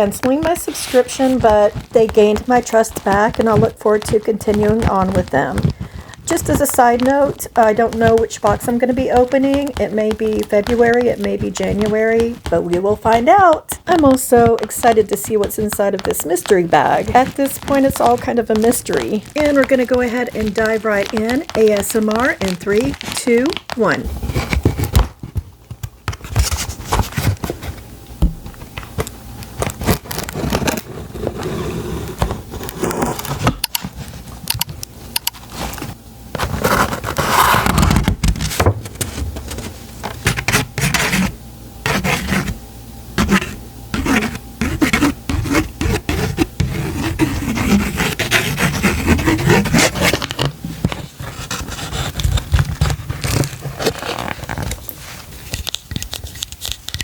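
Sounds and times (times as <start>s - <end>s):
packaging rustling scrapes: 0.0s - 27.9s, 28.5s - 42.6s, 43.2s - 57.0s
tapping and clicks on a box: 1.4s - 23.9s.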